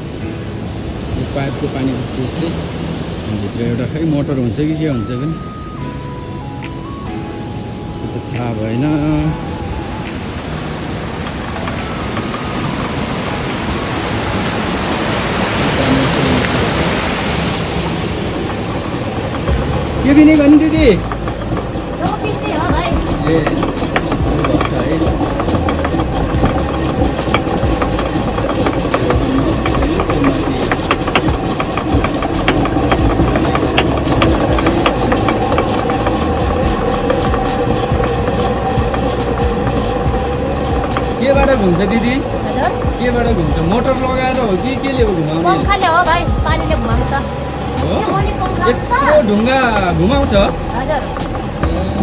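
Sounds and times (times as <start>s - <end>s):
water rushing through pipe: 8.0s - 52.0s
millstone grinding rumble: 14.2s - 52.0s
rapid irregular clicks and knocks: 17.8s - 52.0s.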